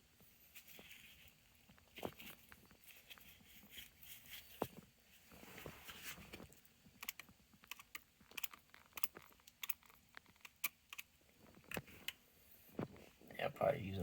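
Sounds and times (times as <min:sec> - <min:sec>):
light irregular clicks and taps: 0:06.3 - 0:12.2.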